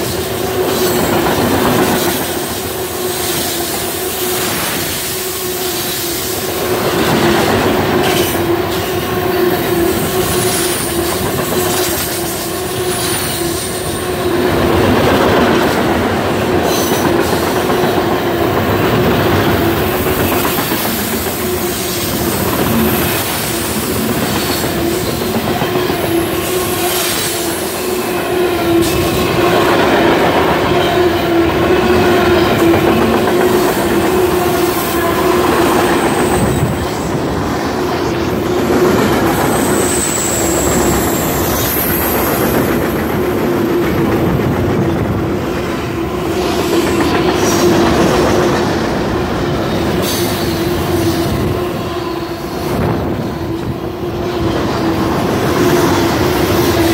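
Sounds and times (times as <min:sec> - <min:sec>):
freight train wheels rumbling: 0:00.0 - 0:56.9
high-pitched wheel squeals: 0:39.3 - 0:42.5.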